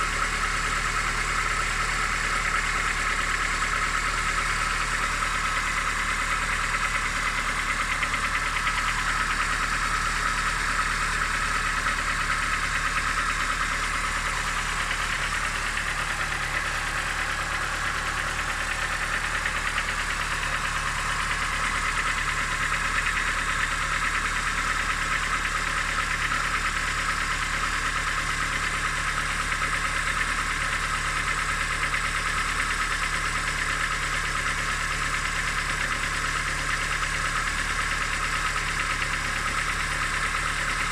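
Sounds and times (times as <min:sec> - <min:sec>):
engine idling with rapid knocking: 0:00.0 - 0:40.9.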